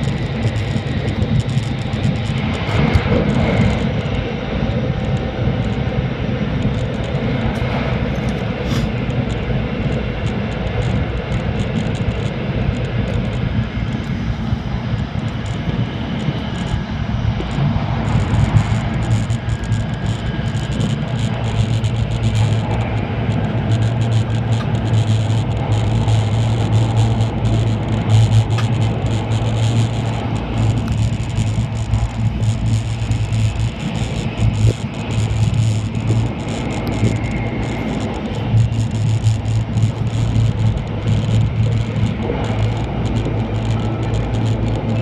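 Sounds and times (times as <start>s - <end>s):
low hum: 0.0s - 45.0s
train running noise at speed: 0.0s - 45.0s.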